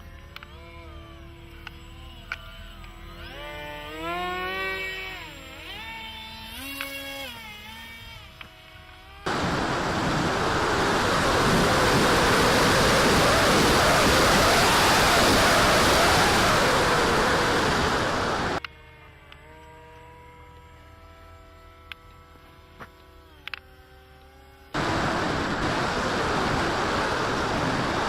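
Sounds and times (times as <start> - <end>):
model plane motor whine: 0.0 - 28.0
heavy wind on microphone: 9.3 - 18.6, 24.8 - 28.0.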